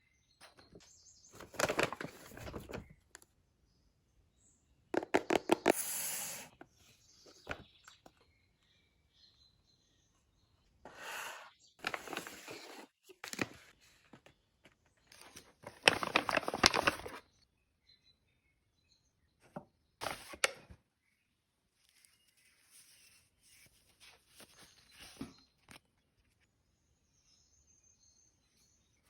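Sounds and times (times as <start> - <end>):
paper and plastic crinkling: 1.4 - 2.9, 11.8 - 14.4, 15.0 - 17.2.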